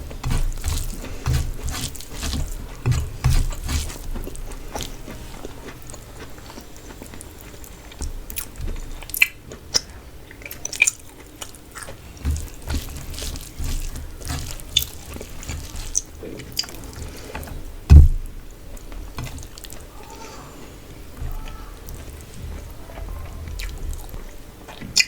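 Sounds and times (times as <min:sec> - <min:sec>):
wet chewing and lip smacking: 0:00.0 - 0:17.6, 0:18.7 - 0:20.0, 0:20.9 - 0:25.0
loud low thump: 0:17.9 - 0:18.3.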